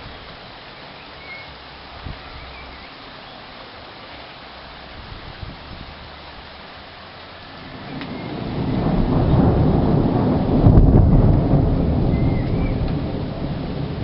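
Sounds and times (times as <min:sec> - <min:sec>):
steady rain: 0:00.0 - 0:14.0
rolling thunder: 0:07.6 - 0:14.0.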